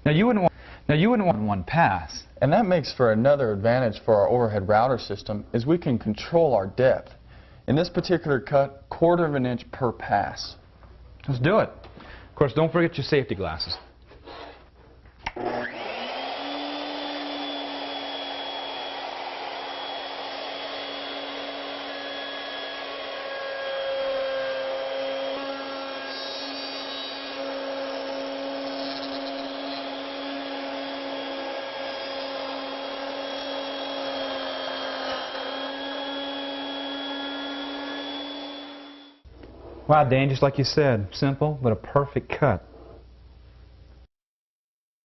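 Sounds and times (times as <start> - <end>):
router motor cutting wood: 15.3 - 39.2.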